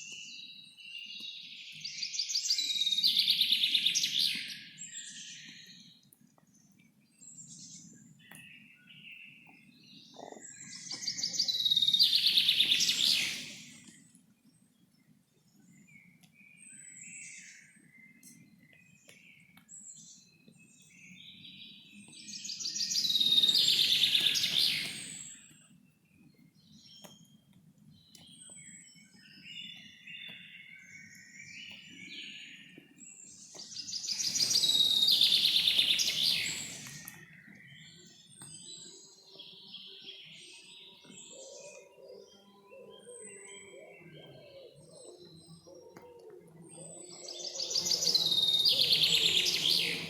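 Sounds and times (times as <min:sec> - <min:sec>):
birds chirping: 0:00.1 - 0:50.0
loud fast trilled birdsong: 0:33.8 - 0:37.2, 0:47.2 - 0:50.0.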